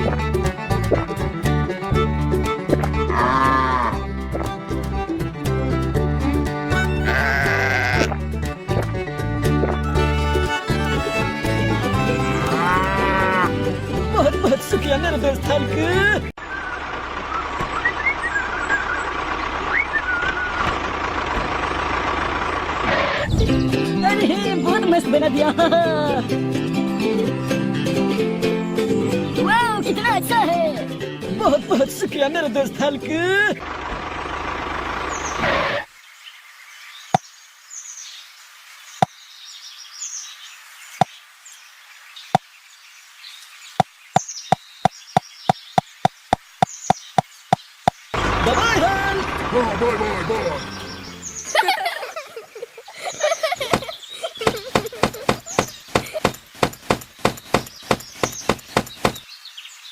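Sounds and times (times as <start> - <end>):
birds chirping: 6.3 - 25.2, 33.0 - 59.9
sharp knocks: 53.6 - 59.2.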